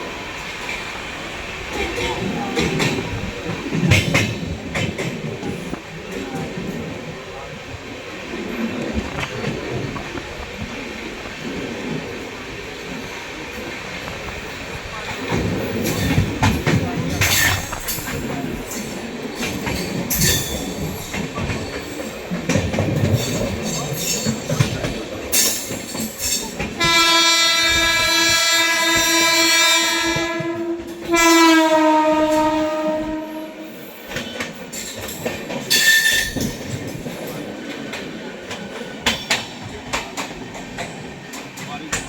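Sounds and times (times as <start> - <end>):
train wheels clicking over rail joints: 0.1 - 42.0
train horn blasts: 26.8 - 33.8.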